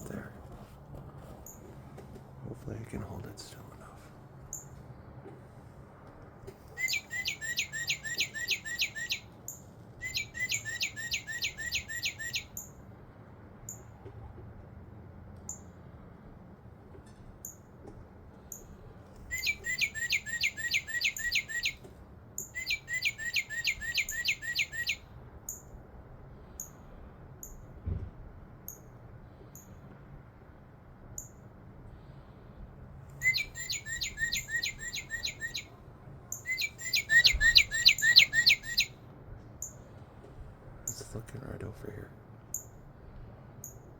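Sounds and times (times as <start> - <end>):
cardinal whistling song: 6.8 - 9.3, 10.0 - 12.6, 19.3 - 21.8, 22.4 - 25.0, 33.2 - 35.7, 36.3 - 39.0.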